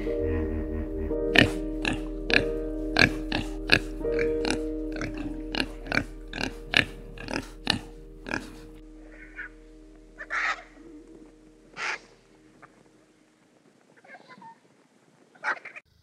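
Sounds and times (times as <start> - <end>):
pig grunting: 0.0 - 9.6
background music: 0.0 - 13.4.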